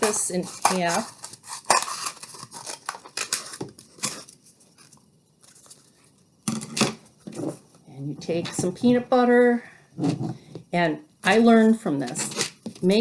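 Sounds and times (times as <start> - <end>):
scissors cutting cardboard: 0.0 - 4.4.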